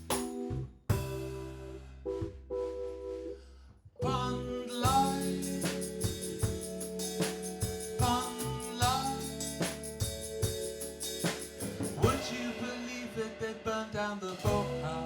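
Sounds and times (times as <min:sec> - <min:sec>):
live band playing: 0:04.8 - 0:13.2
drum hits: 0:04.9 - 0:15.0.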